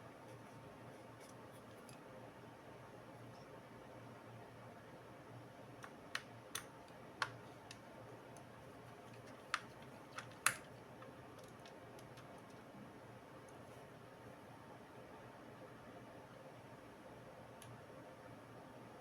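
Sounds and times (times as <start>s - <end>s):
faint steady hum: 0.0s - 19.0s
small hard parts clicking and tapping: 5.8s - 12.6s.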